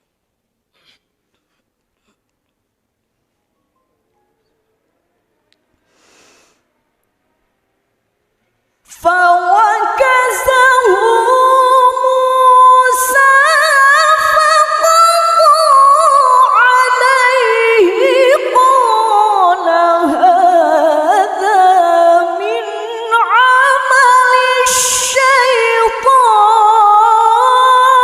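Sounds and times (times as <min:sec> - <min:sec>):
woman chanting melodically: 0:08.9 - 0:28.0.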